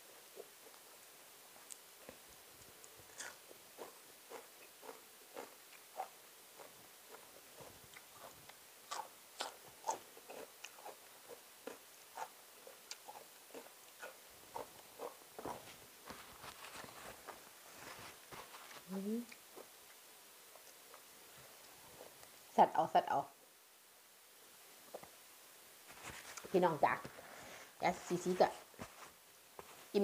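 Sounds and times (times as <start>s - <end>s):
person chewing crunchy salad: 2.8s - 17.2s.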